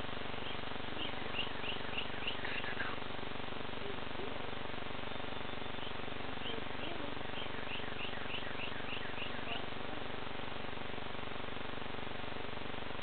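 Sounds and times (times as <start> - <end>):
small bird chirping: 0.0 - 3.0, 5.0 - 9.7
steady background hiss: 0.0 - 13.0.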